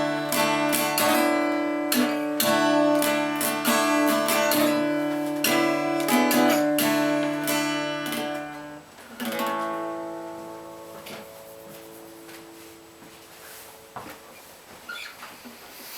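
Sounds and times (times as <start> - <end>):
acoustic guitar strumming chords: 0.0 - 14.8.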